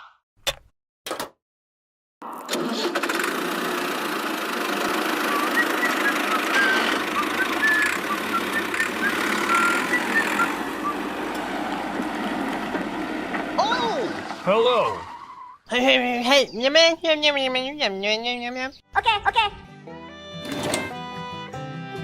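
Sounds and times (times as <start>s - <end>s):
small motor running: 2.6s - 11.4s.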